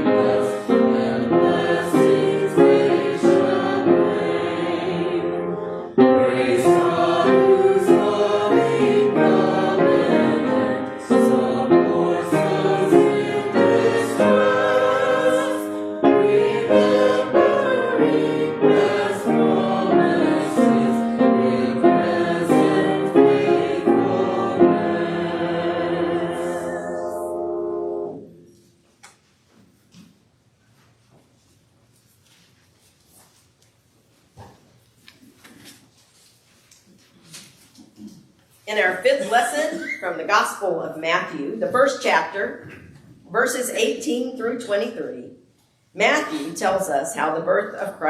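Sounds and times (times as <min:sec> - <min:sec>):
congregation singing a hymn: 0:00.0 - 0:28.5.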